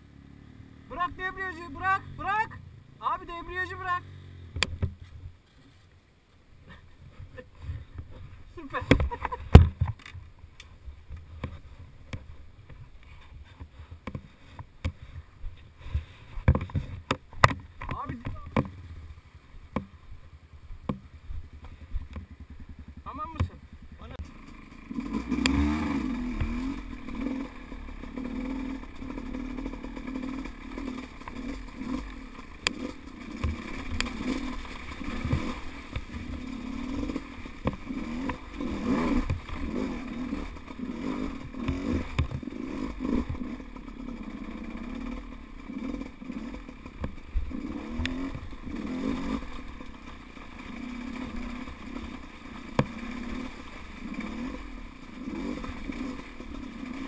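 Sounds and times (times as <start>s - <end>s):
dirt bike engine revving: 0.0s - 4.9s, 20.9s - 57.0s.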